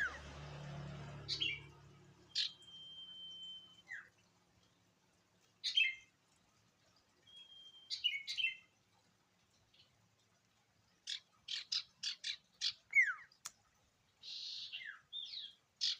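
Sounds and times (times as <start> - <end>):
songbird whistling and chirping: 2.3 - 4.1, 5.6 - 6.0, 7.3 - 8.7, 11.5 - 13.3.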